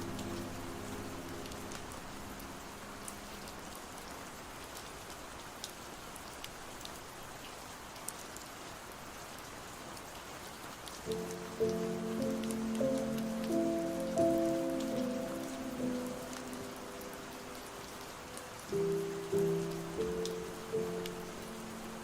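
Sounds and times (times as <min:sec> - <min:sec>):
slow song: 0:00.0 - 0:02.9, 0:11.1 - 0:22.0
rain drops ticking: 0:00.0 - 0:22.0
steady rain hiss: 0:00.0 - 0:22.0.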